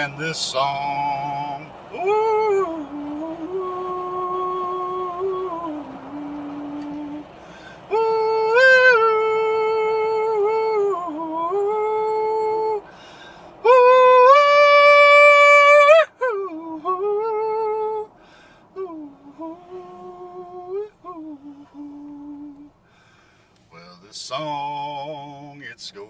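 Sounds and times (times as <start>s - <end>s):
man singing wordless notes: 0.0s - 7.3s, 7.9s - 12.9s, 23.8s - 26.0s.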